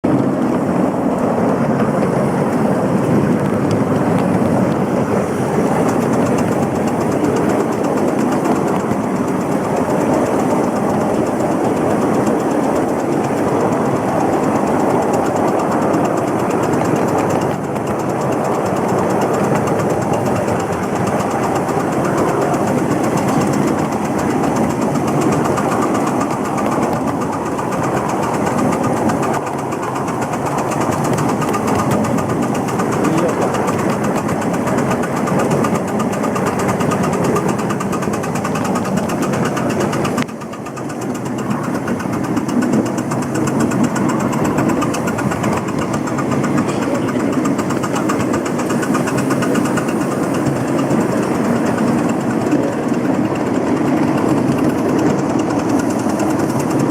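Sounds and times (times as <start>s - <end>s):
train rumbling inside carriage: 0.0s - 56.9s.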